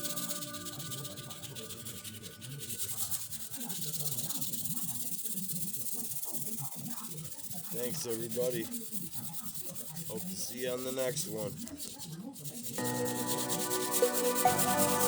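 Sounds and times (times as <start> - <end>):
background music: 0.0 - 2.0, 12.8 - 15.0
sandpaper rubbing on sheet metal: 0.0 - 15.0.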